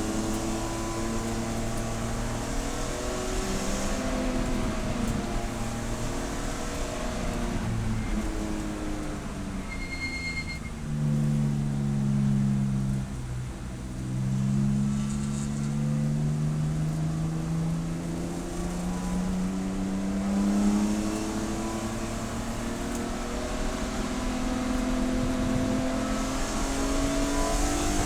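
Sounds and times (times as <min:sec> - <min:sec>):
race car engine running: 0:00.0 - 0:09.7.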